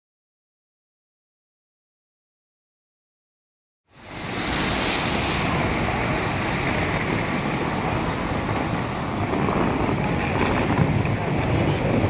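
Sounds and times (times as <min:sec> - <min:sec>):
airliner rushing noise: 0:03.9 - 0:12.0.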